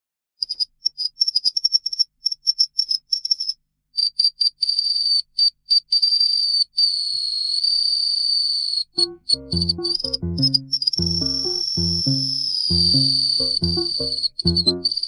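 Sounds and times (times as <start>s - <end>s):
high whistling chirps: 9.0s - 15.0s.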